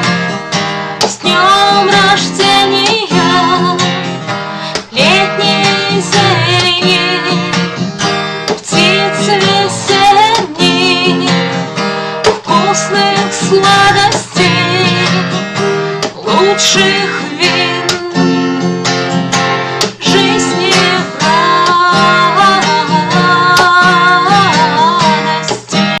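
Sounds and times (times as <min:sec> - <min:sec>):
strummed acoustic guitar: 0:00.0 - 0:26.0
woman singing: 0:01.0 - 0:07.7, 0:08.5 - 0:18.4, 0:19.8 - 0:26.0.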